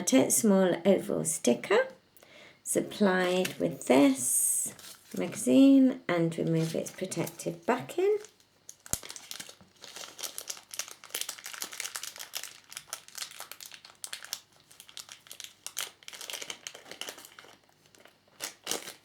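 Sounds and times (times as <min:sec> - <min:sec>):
plastic packaging crinkling: 0:06.3 - 0:19.0.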